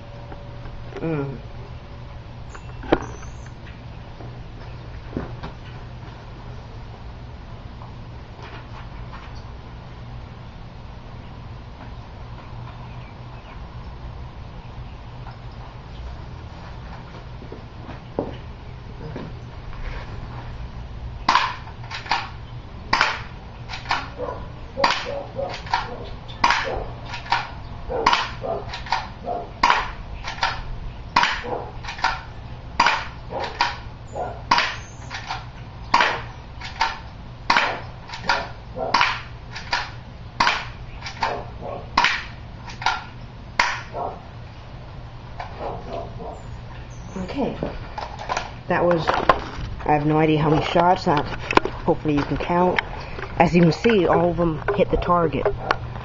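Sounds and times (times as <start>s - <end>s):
airsoft pistol shots snapping: 21.3s - 24.2s, 24.8s - 33.9s, 34.5s - 41.4s, 42.0s - 44.0s.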